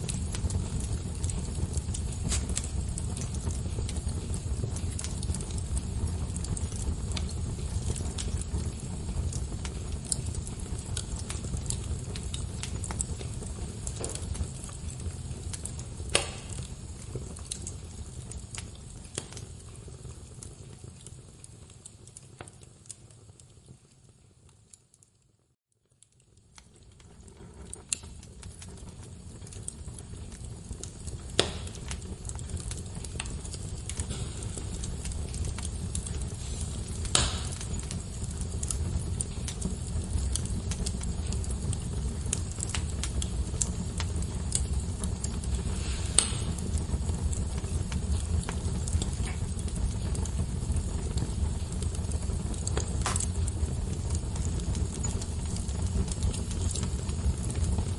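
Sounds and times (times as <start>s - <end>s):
wood fire crackling: 0.0s - 57.9s.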